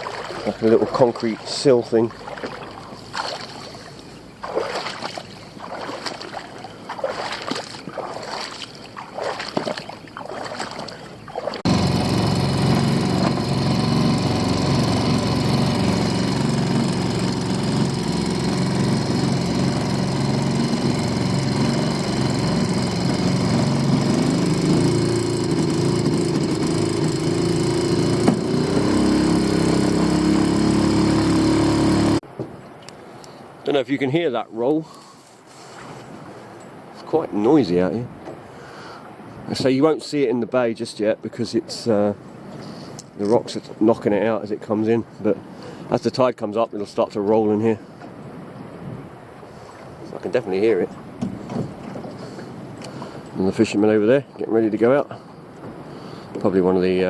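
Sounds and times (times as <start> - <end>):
outboard motor running: 0.0 - 32.3, 47.6 - 57.0
water splashing around a boat: 0.0 - 57.0.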